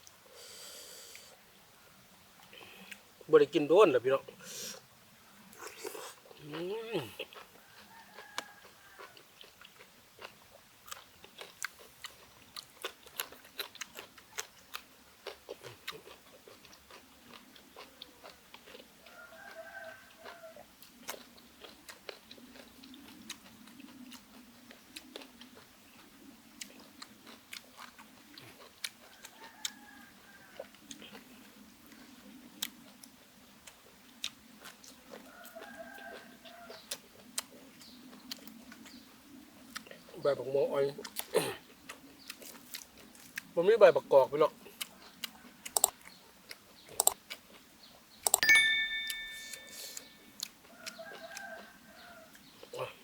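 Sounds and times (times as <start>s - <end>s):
person chewing food: 5.5s - 29.8s, 30.5s - 39.0s, 39.6s - 40.0s, 41.0s - 43.5s, 44.6s - 47.7s, 49.0s - 52.8s
mouth clicks: 45.6s - 46.0s, 46.9s - 47.2s, 48.2s - 48.4s.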